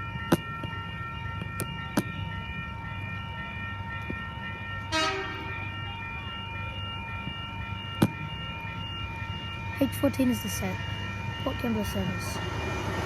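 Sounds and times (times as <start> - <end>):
electric train rumbling and whining: 0.0 - 13.0
train horn toot: 4.9 - 5.6.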